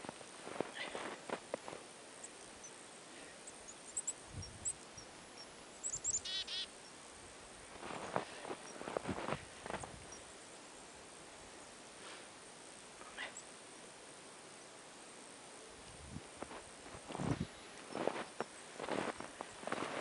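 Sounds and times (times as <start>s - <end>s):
footsteps crunching on snow: 0.0s - 1.9s, 7.7s - 10.0s, 16.4s - 20.0s
small birds chirping: 0.4s - 11.8s, 13.0s - 13.6s.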